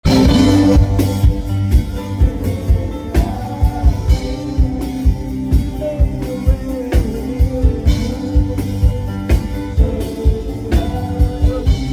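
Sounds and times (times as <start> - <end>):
drum beat: 0.0 - 11.9
sustained instrumental chords: 0.0 - 11.9.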